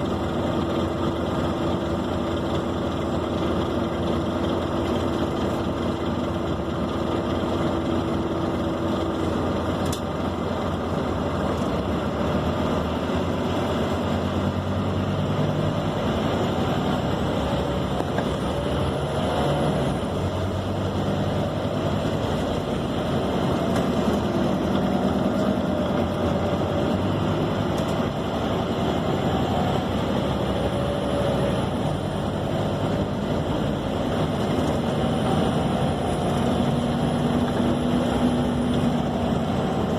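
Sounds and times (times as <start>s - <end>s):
bus diesel engine drone: 0.0s - 39.9s
road noise: 0.0s - 39.9s.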